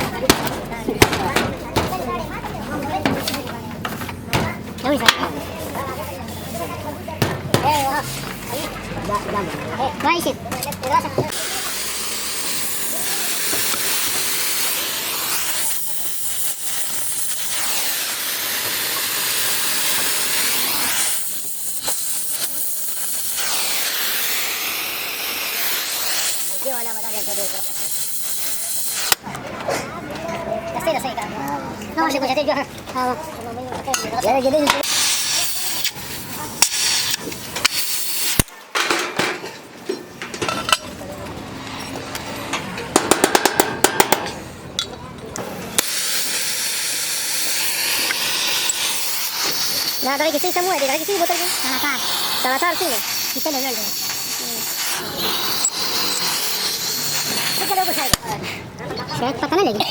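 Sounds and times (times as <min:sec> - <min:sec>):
loud hiss of rushing air: 0:11.3 - 0:29.2, 0:34.8 - 0:38.5, 0:45.7 - 0:58.3.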